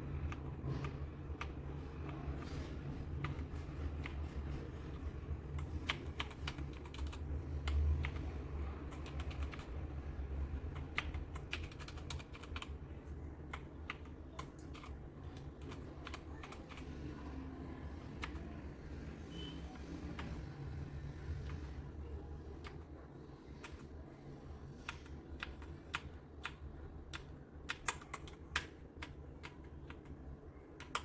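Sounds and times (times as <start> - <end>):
steady low hum: 0.0 - 31.0
mechanical keyboard key clacks: 10.7 - 12.8.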